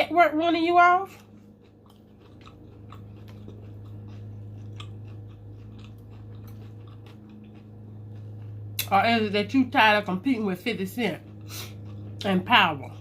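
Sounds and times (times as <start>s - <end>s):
low hum: 0.0s - 13.0s
person chewing food: 1.1s - 8.9s, 11.2s - 12.3s.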